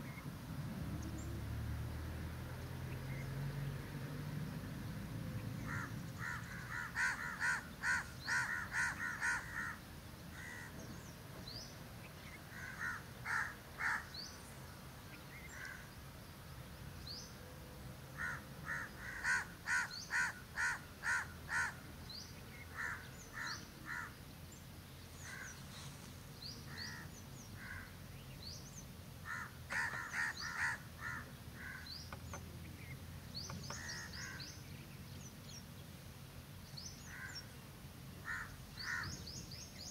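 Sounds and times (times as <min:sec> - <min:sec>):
bird calling rapidly: 0:05.7 - 0:09.8, 0:18.2 - 0:21.9, 0:29.2 - 0:32.4, 0:33.4 - 0:34.6
small birds high chirps: 0:18.7 - 0:39.9.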